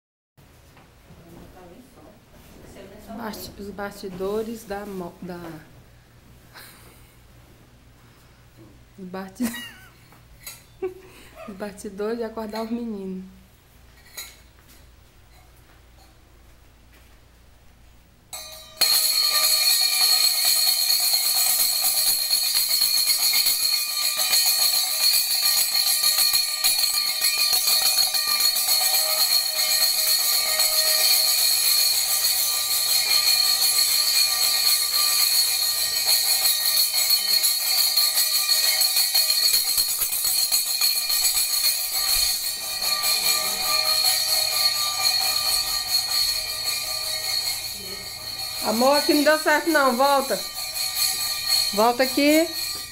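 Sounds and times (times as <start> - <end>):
bell ringing continuously: 18.3 - 52.9.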